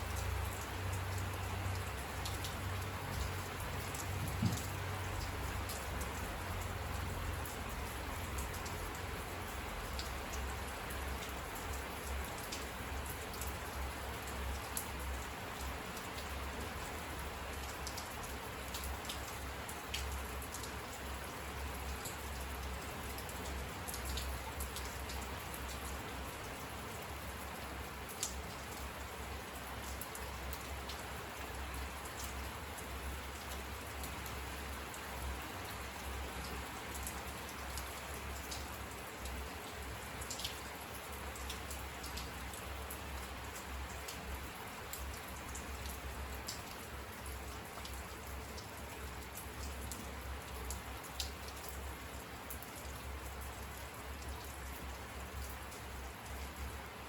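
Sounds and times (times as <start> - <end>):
raindrops ticking close by: 0.0 - 57.0
steady rain falling: 0.0 - 57.0.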